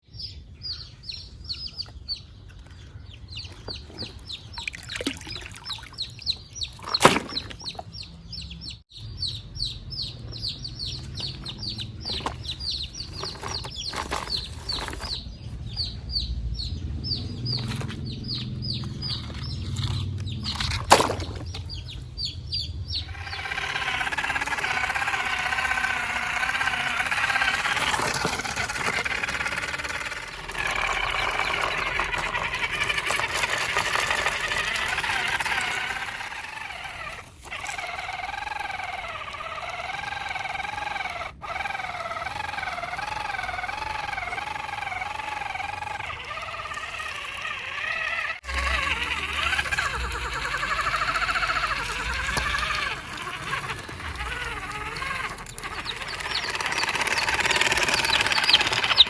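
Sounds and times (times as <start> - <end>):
small birds chirping: 0.0 - 59.0
small electric motor whirring: 11.1 - 15.8, 23.0 - 59.0
sharp clicks: 23.1 - 59.0.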